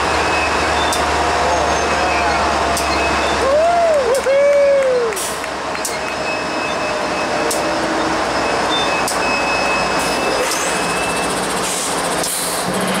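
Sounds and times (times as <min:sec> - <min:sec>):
high wheel squeal: 0:00.2 - 0:03.6, 0:05.7 - 0:13.0
freight train rumbling past: 0:09.8 - 0:13.0.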